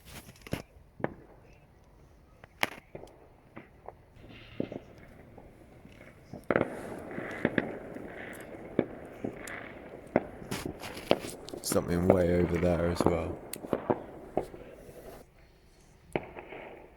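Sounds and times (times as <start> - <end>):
crackle of rockets bursting: 0.0 - 16.9
distant firework bangs and pops: 0.0 - 16.9.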